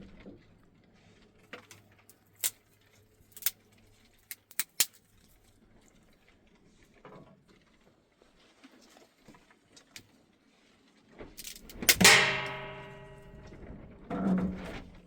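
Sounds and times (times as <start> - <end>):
sharp clicks and knocks: 11.4 - 14.8.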